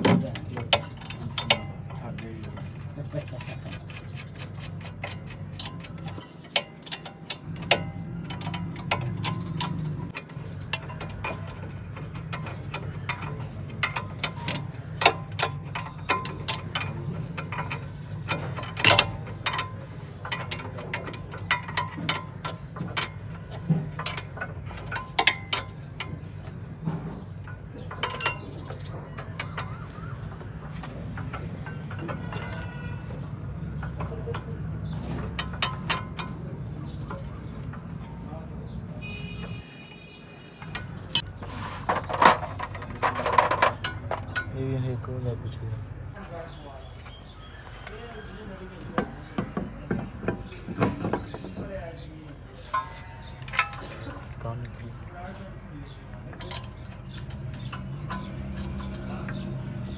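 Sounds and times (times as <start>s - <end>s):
metal hand tools clinking: 18.6s - 19.7s, 24.9s - 25.8s, 28.0s - 28.7s, 31.6s - 32.8s, 41.2s - 44.5s.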